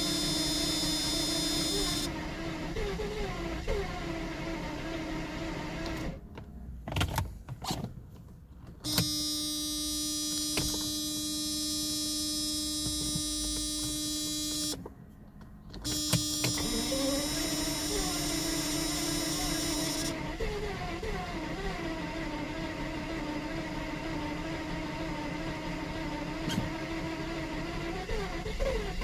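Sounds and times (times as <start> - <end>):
starter motor cranking engine: 0.0 - 6.2, 15.9 - 29.0.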